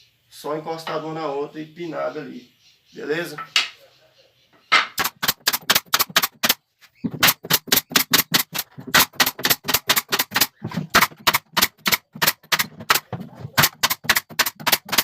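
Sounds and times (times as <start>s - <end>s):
pin nailer firing: 5.0s - 15.0s.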